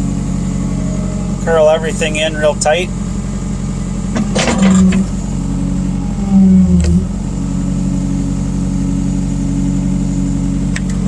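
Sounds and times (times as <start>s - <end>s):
diesel engine running: 0.0s - 11.0s
hydraulics under load: 0.2s - 8.0s.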